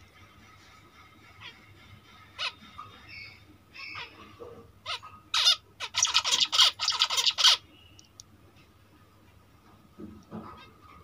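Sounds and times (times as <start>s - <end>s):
birds calling harshly: 1.3s - 8.1s.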